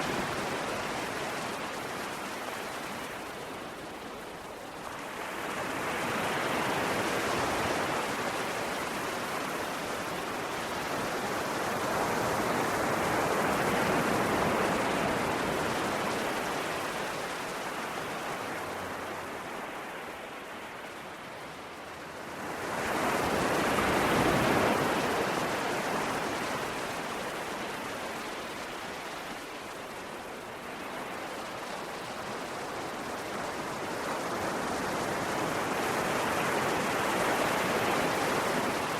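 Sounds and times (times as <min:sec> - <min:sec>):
ocean waves washing in: 0:00.0 - 0:38.9.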